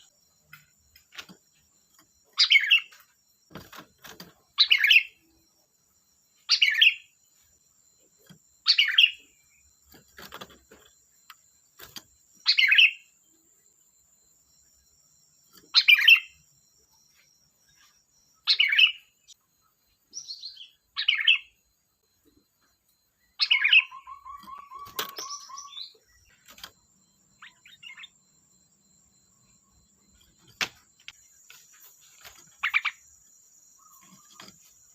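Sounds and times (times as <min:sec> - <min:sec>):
bird calling chirped phrases: 0:02.4 - 0:02.9, 0:04.6 - 0:05.2, 0:18.4 - 0:19.1, 0:20.1 - 0:21.6, 0:23.2 - 0:26.4, 0:33.8 - 0:34.5.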